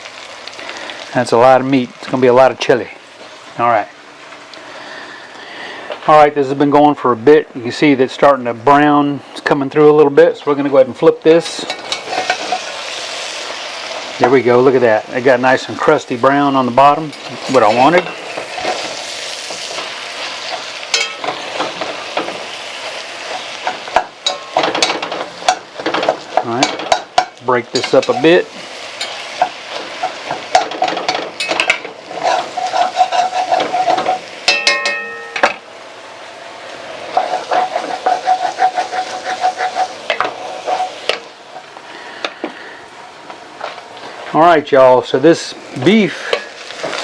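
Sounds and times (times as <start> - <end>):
meat sizzling in a pot: 0.0 - 47.0
utensil stirring meat: 9.4 - 35.5, 36.6 - 42.5.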